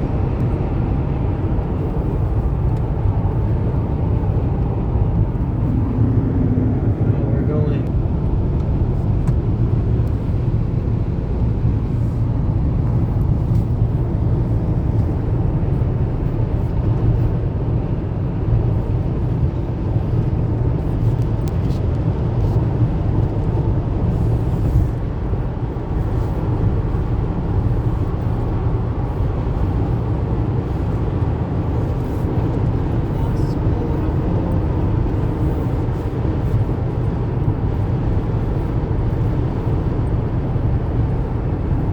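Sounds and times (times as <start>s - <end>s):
car engine and tyre rumble: 0.0s - 41.9s.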